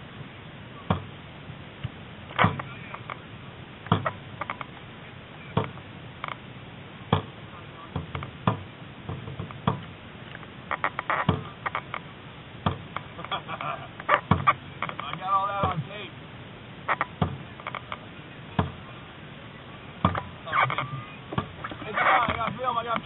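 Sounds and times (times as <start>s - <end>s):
paddles hitting water: 1.8s - 4.8s, 7.0s - 16.2s, 19.9s - 23.0s.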